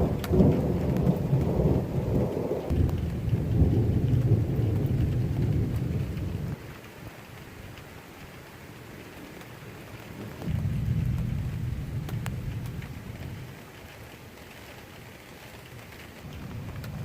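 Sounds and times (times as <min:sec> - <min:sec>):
rolling thunder: 0:00.0 - 0:06.6, 0:10.4 - 0:13.6, 0:16.2 - 0:17.0
steady rain: 0:00.0 - 0:17.0.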